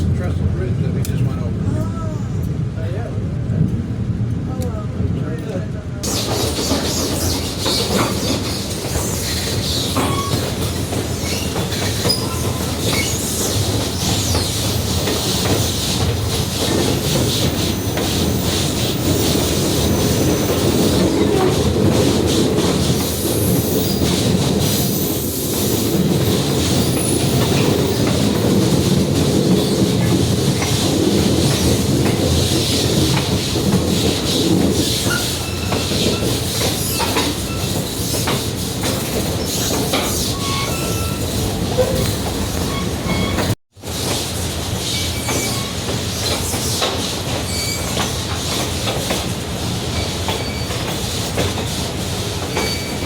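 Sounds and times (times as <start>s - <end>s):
train wheels rumbling on rails: 0.0s - 53.0s
high wheel squeal: 6.1s - 15.9s, 35.0s - 38.4s, 39.4s - 43.6s, 44.8s - 46.8s, 47.4s - 48.1s, 50.0s - 50.9s, 52.4s - 53.0s.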